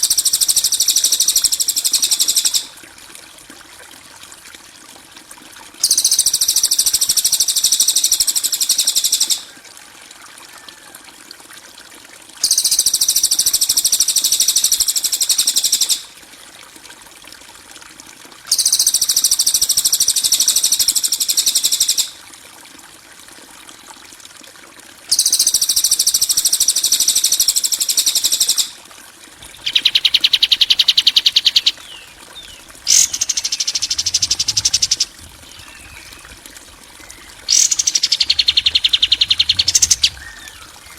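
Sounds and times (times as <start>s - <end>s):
faint water trickle: 0.0s - 40.9s
songbird harsh chattering trills: 29.5s - 36.4s, 37.0s - 40.9s.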